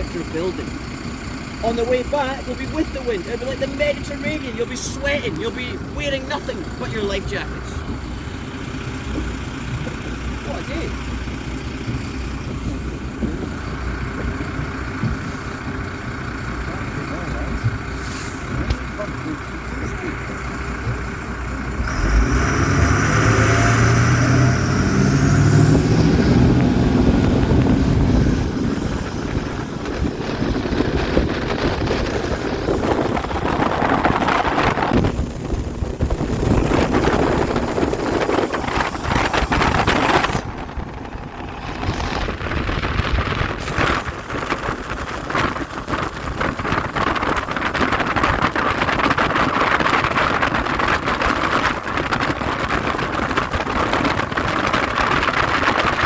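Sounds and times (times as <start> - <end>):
speedboat engine whine: 0.0 - 56.0
rush of wind and water: 21.8 - 56.0.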